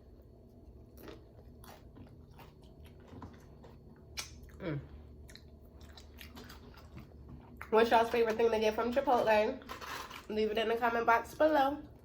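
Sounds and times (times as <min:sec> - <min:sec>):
chewing crunchy chips: 0:00.4 - 0:08.4.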